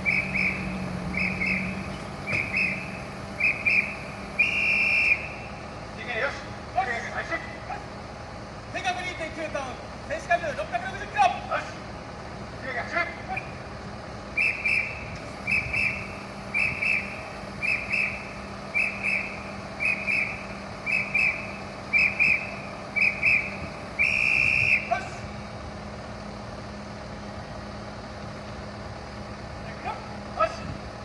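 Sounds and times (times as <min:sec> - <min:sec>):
whistle blasts: 0:00.0 - 0:05.6, 0:14.4 - 0:25.2
steady low hum: 0:00.0 - 0:31.0.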